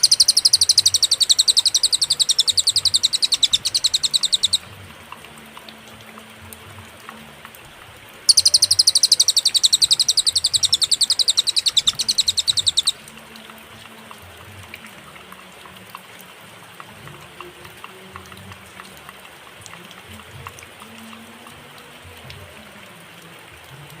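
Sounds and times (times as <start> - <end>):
high-pitched bird trill: 0.0 - 4.6, 8.3 - 13.0
faint background hiss: 0.0 - 24.0.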